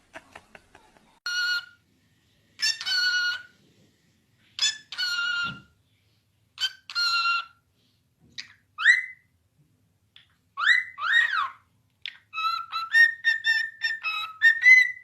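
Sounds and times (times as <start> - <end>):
parrot calling: 1.2 - 1.8, 2.6 - 3.6, 4.6 - 5.6, 6.6 - 7.6, 8.4 - 9.3, 10.6 - 15.0.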